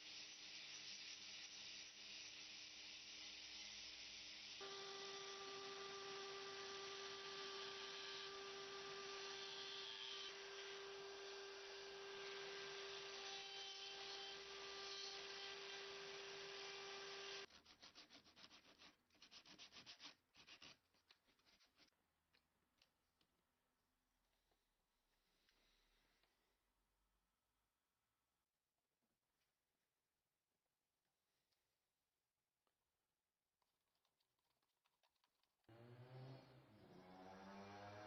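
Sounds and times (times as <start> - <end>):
electric power tool humming: 4.6 - 17.5, 35.7 - 38.0.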